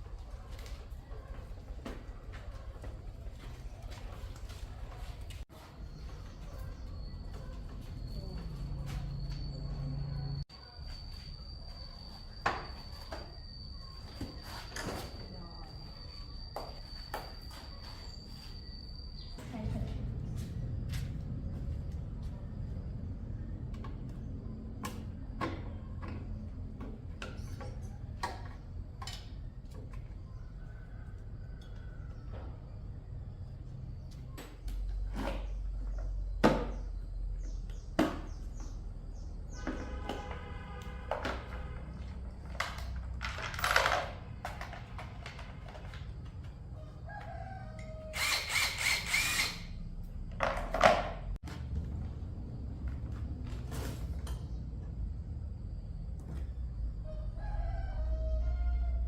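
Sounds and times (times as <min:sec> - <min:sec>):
rooster crowing: 0:46.7 - 0:49.4, 0:57.0 - 0:59.0.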